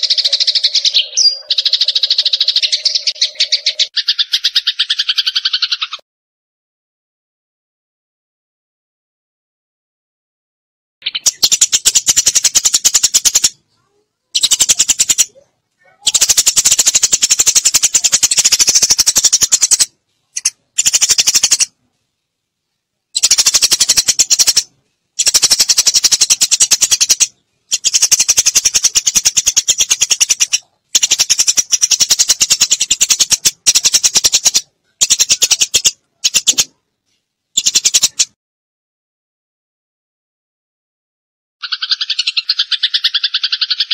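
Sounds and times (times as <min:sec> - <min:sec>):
sparrows chattering: 0:00.0 - 0:06.0, 0:11.0 - 0:21.8, 0:23.1 - 0:36.8, 0:37.6 - 0:38.4, 0:41.6 - 0:43.9.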